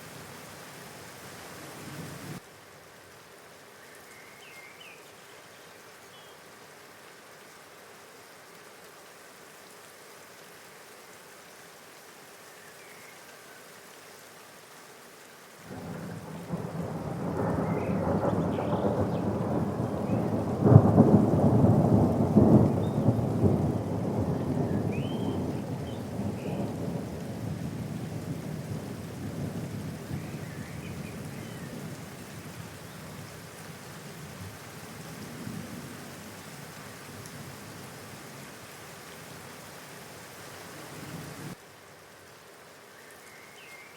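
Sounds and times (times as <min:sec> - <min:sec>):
steady rain: 0:00.0 - 0:43.9
thunder rumbling and cracking: 0:15.7 - 0:30.2.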